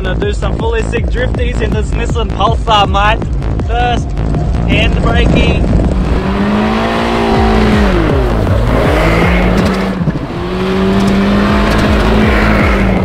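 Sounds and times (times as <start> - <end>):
car engine revving: 0.0 - 13.0
tyre noise: 0.0 - 13.0.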